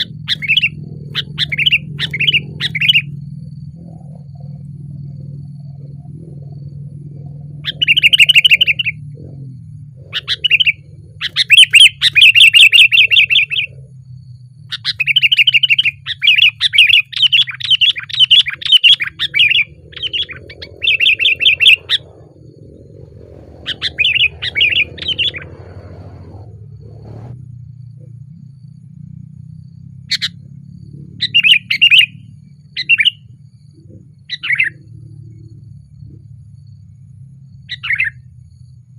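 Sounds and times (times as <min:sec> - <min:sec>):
bulbul chattering call: 0:00.0 - 0:03.2, 0:07.6 - 0:09.2, 0:10.0 - 0:13.8, 0:14.7 - 0:23.0, 0:23.6 - 0:25.6, 0:31.2 - 0:33.4, 0:34.3 - 0:34.8, 0:37.7 - 0:38.3.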